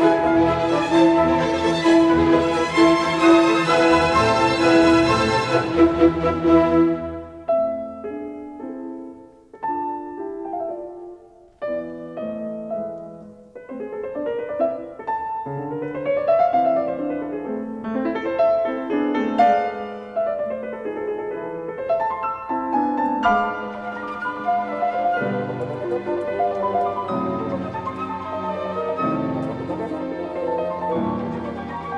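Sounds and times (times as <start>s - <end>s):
slow solo piano: 7.2s - 31.9s.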